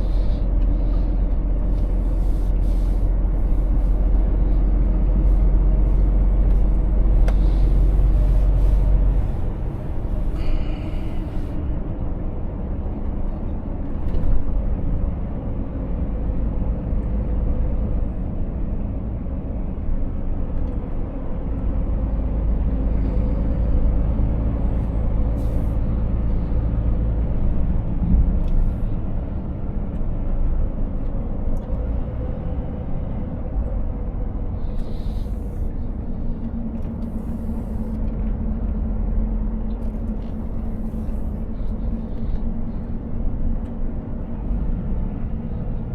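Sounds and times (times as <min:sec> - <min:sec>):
road rumble: 0:00.0 - 0:45.9
truck diesel engine drone: 0:00.0 - 0:45.9.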